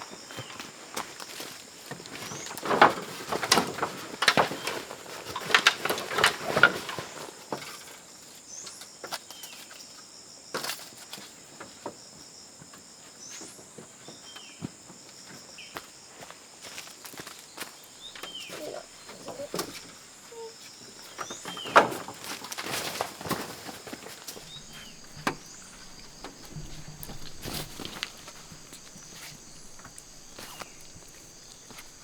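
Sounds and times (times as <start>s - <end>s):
insects buzzing: 0.0s - 32.0s
crackling rustling strokes: 17.9s - 32.0s
bird chirps: 18.0s - 21.8s, 24.4s - 32.0s.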